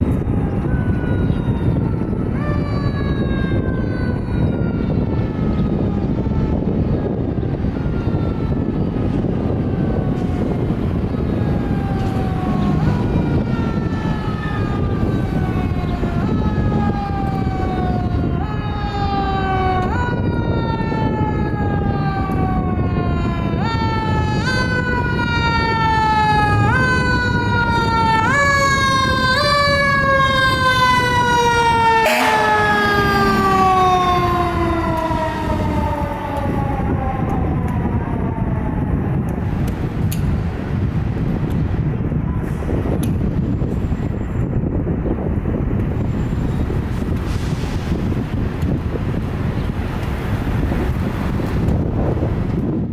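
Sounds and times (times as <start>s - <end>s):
mechanical siren wailing: 0.0s - 39.8s
truck engine and road noise: 0.0s - 52.9s.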